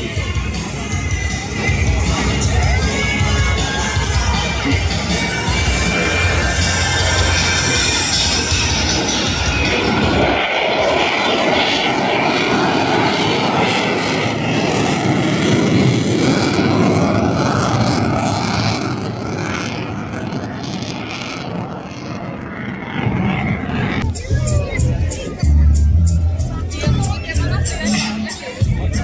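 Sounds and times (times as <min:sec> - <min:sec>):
airplane passing overhead: 0:00.0 - 0:29.0.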